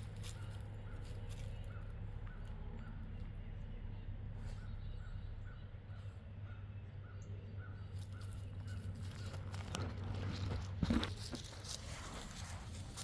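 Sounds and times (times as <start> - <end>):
dog digging in dirt: 8.0 - 13.0.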